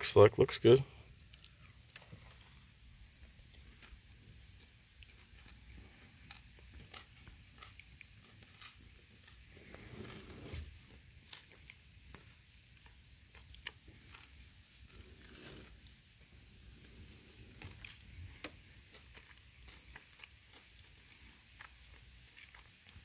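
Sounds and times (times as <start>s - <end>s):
insect chirping: 0.0s - 23.0s
soft rustle: 9.5s - 11.0s.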